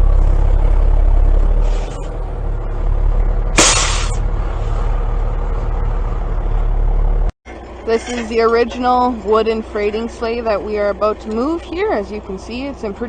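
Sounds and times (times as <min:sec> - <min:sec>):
heavy vehicle engine rumbling: 0:00.0 - 0:13.0
air release hiss: 0:03.6 - 0:04.2.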